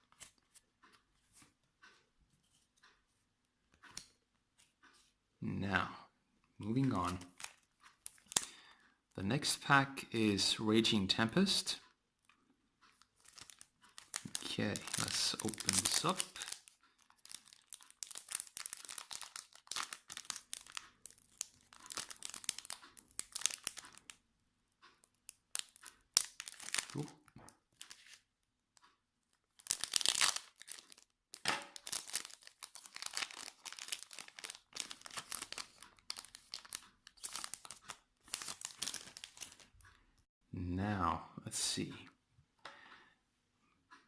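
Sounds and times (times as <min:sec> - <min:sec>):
foil wrapper crinkling and tearing: 0:07.0 - 0:08.5, 0:13.1 - 0:24.2, 0:25.3 - 0:27.1, 0:29.5 - 0:39.8.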